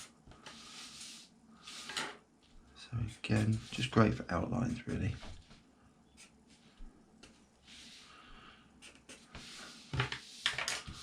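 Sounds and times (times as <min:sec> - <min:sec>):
pen scratching on paper: 0:08.8 - 0:11.0.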